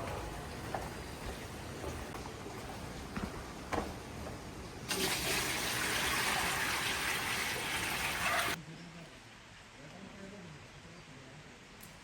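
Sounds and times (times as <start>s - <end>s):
water gushing: 4.9s - 8.6s.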